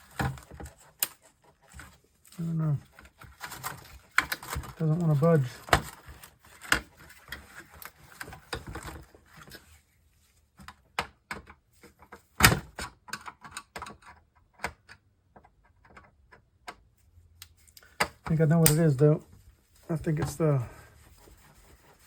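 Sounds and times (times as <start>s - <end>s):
hands clicking and knocking on electronics: 10.6s - 18.8s.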